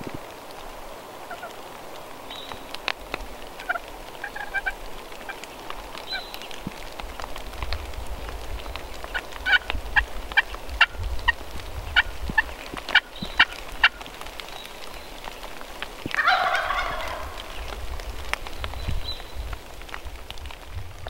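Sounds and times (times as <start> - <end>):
turkey gobbling: 1.3 - 1.5, 3.6 - 4.8, 9.1 - 9.7, 16.2 - 17.7
turkeys yelping: 1.3 - 1.6, 3.6 - 5.5, 9.1 - 11.0, 11.9 - 14.1, 16.1 - 17.8.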